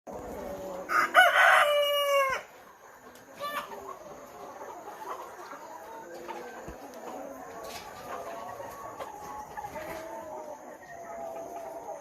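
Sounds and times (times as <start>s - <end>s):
chickens clucking: 0.1s - 12.0s
chicken crowing: 0.8s - 2.5s.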